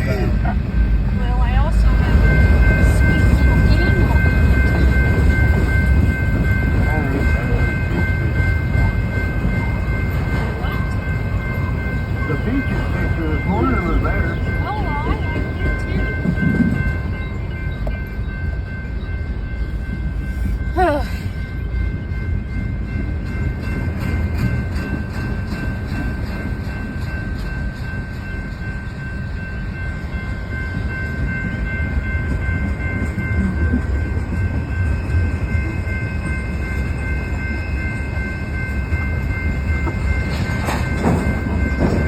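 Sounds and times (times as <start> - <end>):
freight train rumbling past: 0.0 - 42.0
wheels clicking over rail joints: 30.7 - 42.0.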